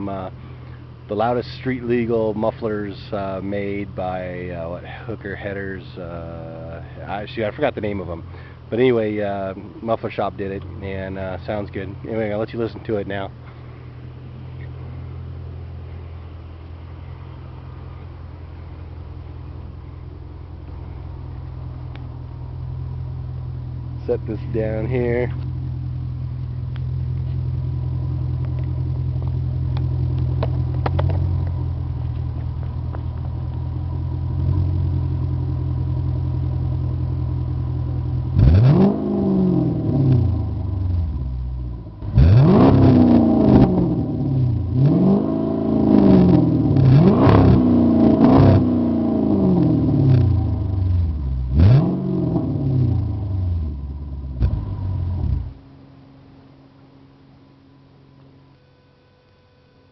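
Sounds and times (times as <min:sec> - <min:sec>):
car exhaust idling rumble: 0:00.0 - 0:59.9
engine revving in quick blips: 0:38.3 - 0:41.3, 0:42.0 - 0:55.6.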